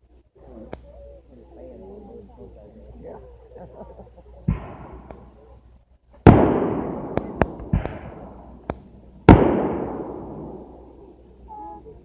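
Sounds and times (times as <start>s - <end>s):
short sharp firework cracks: 6.2s - 10.8s.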